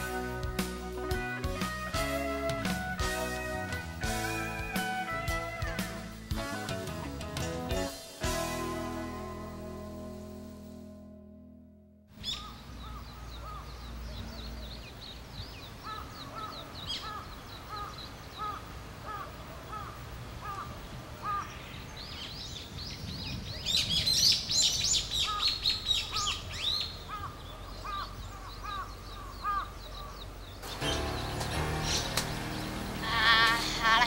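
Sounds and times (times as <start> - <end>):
birds chirping: 12.1 - 34.0.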